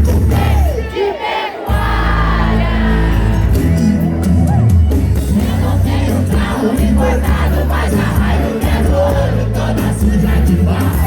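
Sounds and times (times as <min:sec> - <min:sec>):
crowd singing along: 0:00.0 - 0:11.0
live band music with heavy bass: 0:00.0 - 0:11.0.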